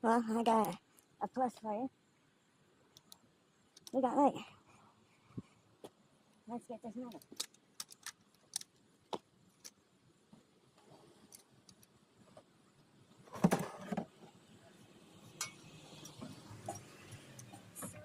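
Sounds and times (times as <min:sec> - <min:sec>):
light metallic clicks and clinks: 0:15.3 - 0:18.0.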